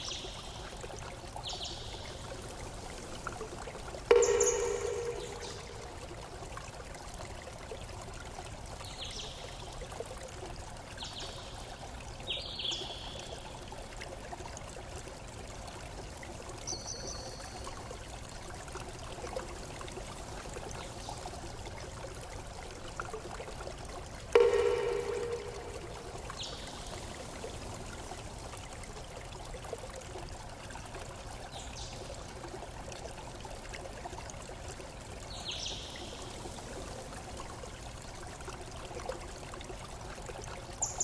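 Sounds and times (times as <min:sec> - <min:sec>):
water trickling: 0:00.0 - 0:41.0
high bird chirps: 0:04.1 - 0:05.9
loud pitched note: 0:04.1 - 0:06.0, 0:24.4 - 0:26.4.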